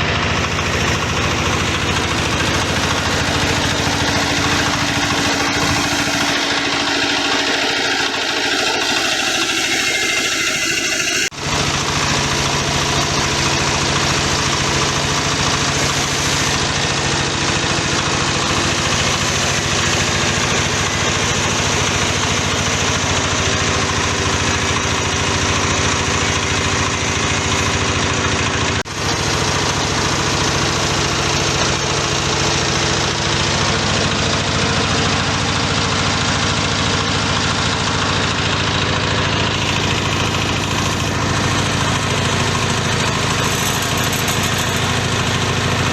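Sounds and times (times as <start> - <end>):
pellet machine droning: 0.0 - 45.9.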